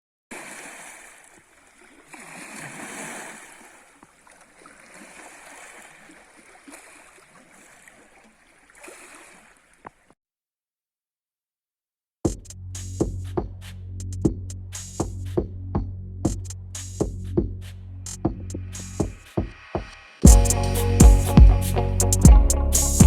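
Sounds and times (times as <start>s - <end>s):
water gurgling and lapping: 0.3s - 10.2s.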